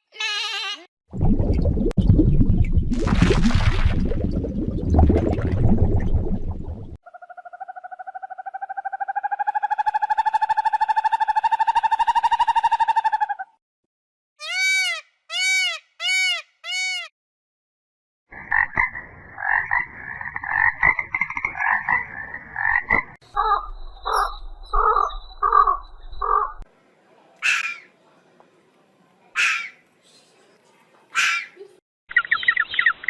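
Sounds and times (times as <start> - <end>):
animal calls: 23.3 - 26.6.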